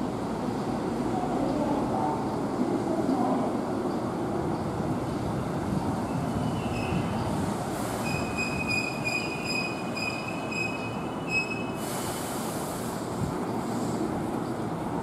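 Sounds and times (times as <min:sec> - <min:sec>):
train wheels squealing: 0:06.1 - 0:07.3, 0:07.9 - 0:12.4
short hiss: 0:11.8 - 0:14.0.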